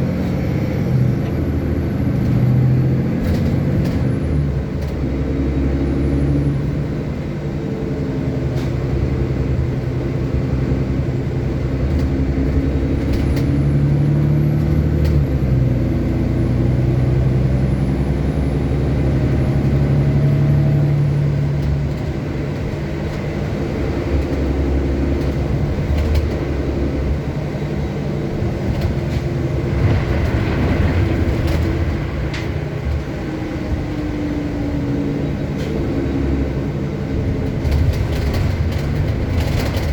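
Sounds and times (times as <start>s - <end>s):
bus engine and drivetrain hum: 0.0s - 39.9s
sharp clicks and rattles: 37.4s - 39.9s.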